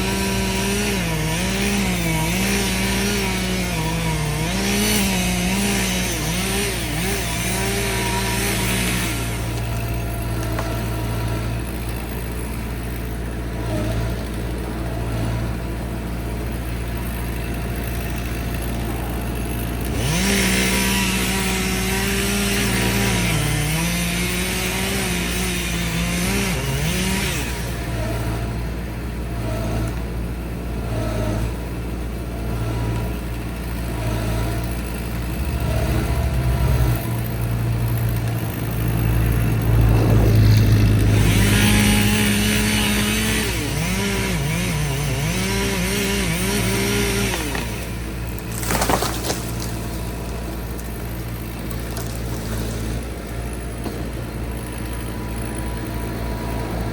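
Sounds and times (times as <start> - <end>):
chainsaw cutting wood: 0.0 - 56.9
low engine drone: 35.1 - 45.3.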